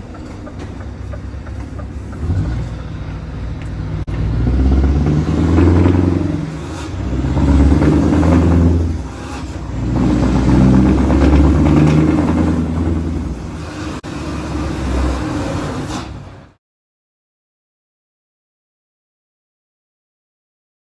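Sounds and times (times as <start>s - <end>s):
truck engine revving: 0.0s - 16.6s.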